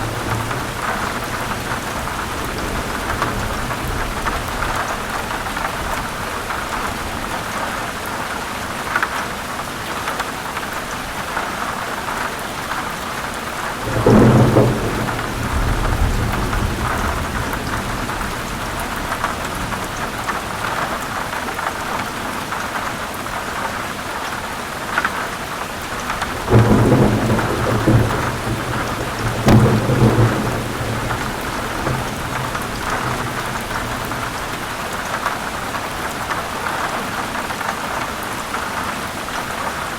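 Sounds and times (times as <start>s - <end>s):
thunder rumbling: 0.0s - 7.4s, 13.6s - 21.3s, 25.9s - 36.4s
heavy rain falling: 0.0s - 39.9s.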